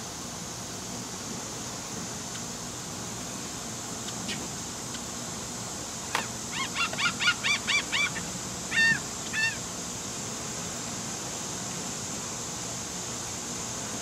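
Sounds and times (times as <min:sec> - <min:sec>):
bird calling: 0:06.2 - 0:09.7.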